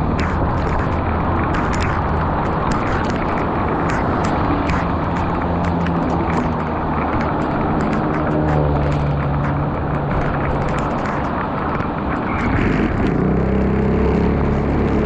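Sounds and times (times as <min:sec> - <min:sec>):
heavy rain pouring: 0:00.0 - 0:15.0
vehicle engine hum: 0:00.0 - 0:15.0.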